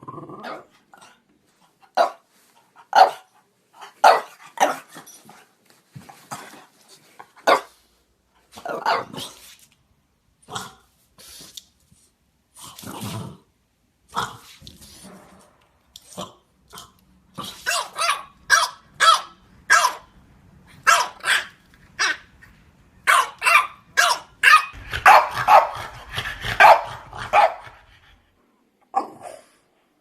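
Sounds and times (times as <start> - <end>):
dog growling: 0.0 - 1.2
dog barking high short barks: 17.7 - 20.0, 20.8 - 22.2, 23.1 - 25.8.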